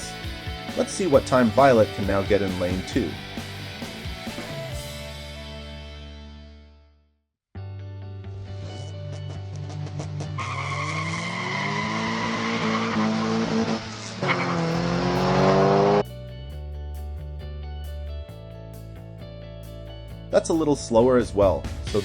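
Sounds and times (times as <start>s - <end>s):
background music: 0.0s - 6.8s, 7.6s - 22.0s
race car engine revving: 9.4s - 16.0s.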